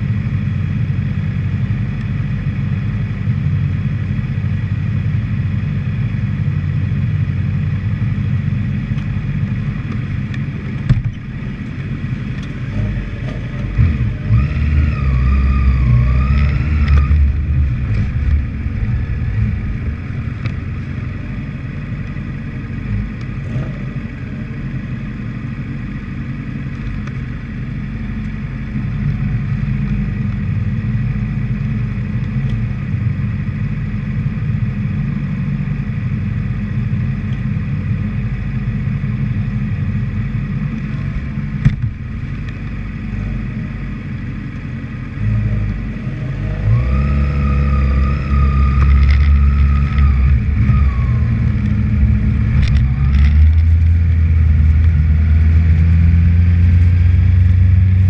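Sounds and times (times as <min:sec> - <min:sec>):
motorcycle engine idling: 0:00.0 - 0:14.2, 0:17.2 - 0:45.2.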